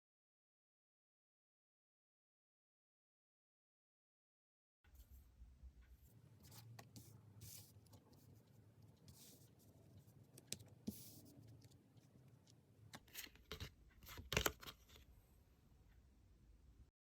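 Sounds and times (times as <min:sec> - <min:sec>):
cards tapping and rustling: 0:12.9 - 0:15.0.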